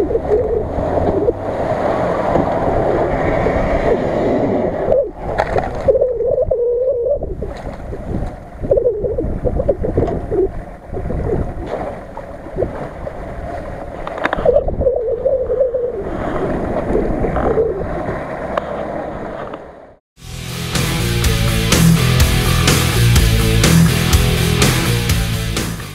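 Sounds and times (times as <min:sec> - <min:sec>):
engine revving: 0:20.2 - 0:25.9.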